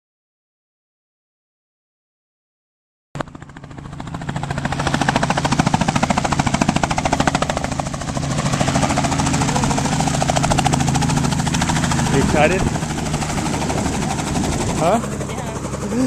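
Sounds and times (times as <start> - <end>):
helicopter engine hum: 3.2 - 16.0
helicopter rotor chopping: 3.2 - 16.0.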